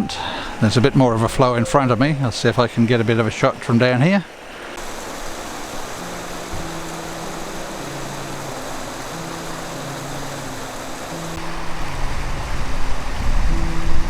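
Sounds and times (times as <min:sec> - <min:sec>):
waterfall and stream rushing: 0:00.0 - 0:14.0
slow low background music: 0:05.4 - 0:14.0.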